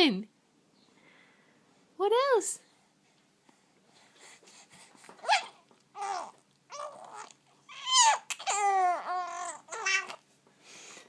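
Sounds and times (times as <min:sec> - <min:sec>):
baby babbling and cooing: 0:05.0 - 0:10.2.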